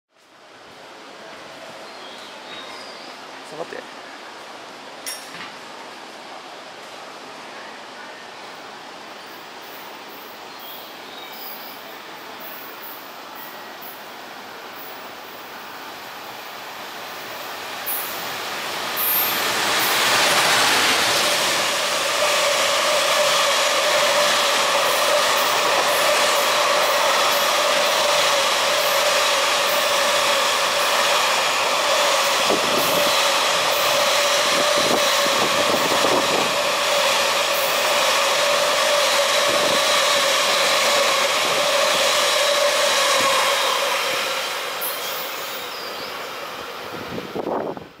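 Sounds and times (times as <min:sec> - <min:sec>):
train wagons rolling on rails: 0:16.2 - 0:48.0.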